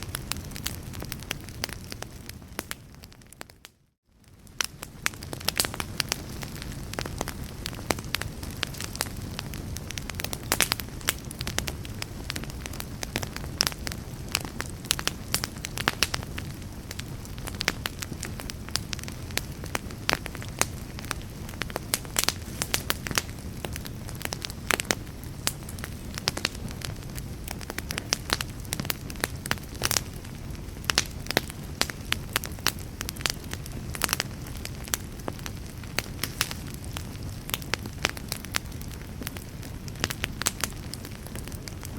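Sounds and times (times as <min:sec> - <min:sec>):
fire crackling and popping: 0:00.0 - 0:41.9.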